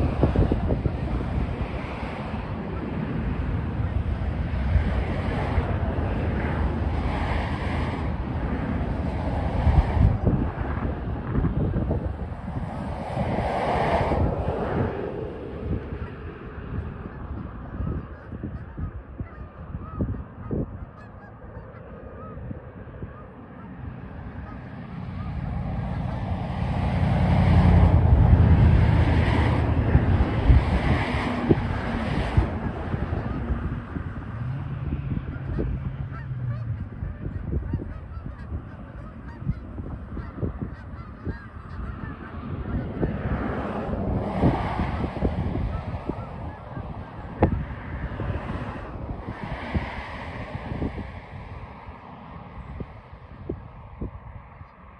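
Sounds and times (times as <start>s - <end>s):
wind on microphone: 0.0s - 54.9s
geese honking: 15.7s - 26.5s, 33.1s - 33.8s, 34.9s - 43.6s, 45.0s - 47.6s.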